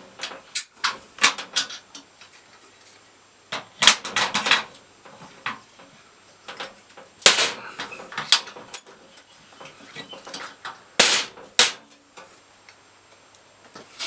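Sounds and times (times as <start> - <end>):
sharp knocks and clatters: 3.5 - 5.9.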